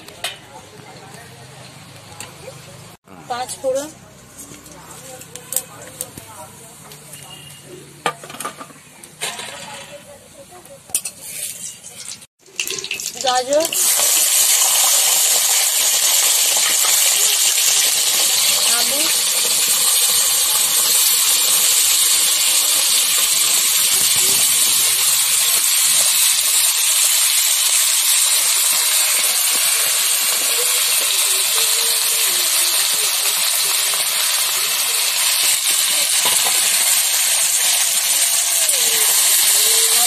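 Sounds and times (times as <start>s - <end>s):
vegetables sizzling in hot oil: 9.4s - 40.0s.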